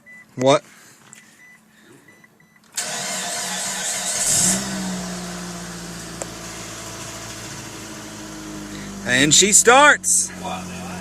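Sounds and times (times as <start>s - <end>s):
car engine cranking and idling: 2.6s - 11.0s.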